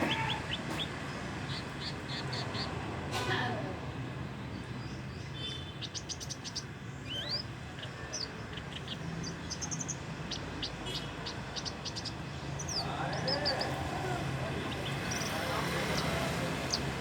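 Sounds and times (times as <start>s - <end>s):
bird chirping and whistling: 7.1s - 7.4s.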